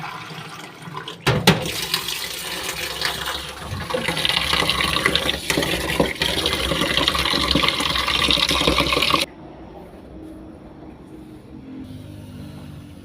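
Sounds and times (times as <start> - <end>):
water running from a tap: 0.0 - 9.3.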